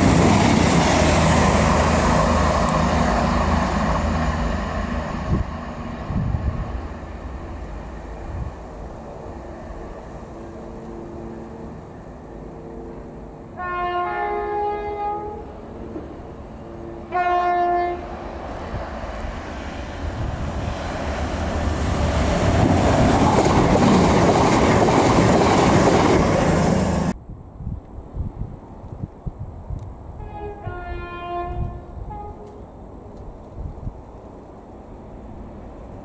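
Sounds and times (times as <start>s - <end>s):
train running past at speed: 0.0s - 36.0s
train horn two-tone blasts: 12.6s - 15.9s, 16.6s - 18.1s, 30.2s - 32.6s.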